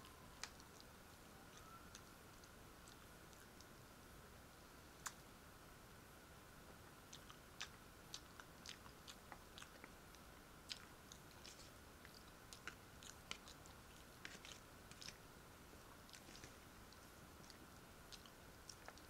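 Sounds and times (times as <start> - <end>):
faint steady hiss: 0.0 - 19.0
person chewing food: 7.1 - 15.2, 15.8 - 19.0.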